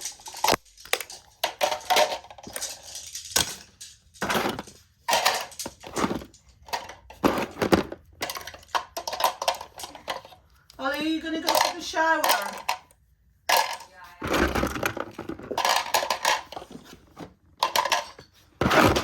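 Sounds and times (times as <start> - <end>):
buzzy rattle: 0.0 - 7.1
small hard objects clacking: 0.0 - 10.4, 11.2 - 12.9, 13.5 - 16.8.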